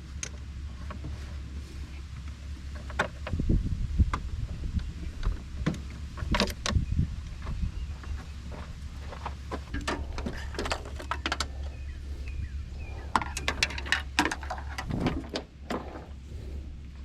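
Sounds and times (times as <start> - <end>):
steady low hum: 0.0 - 17.0
sharp clicks and knocks: 2.7 - 3.4, 4.1 - 8.2, 9.2 - 11.8, 13.1 - 16.1.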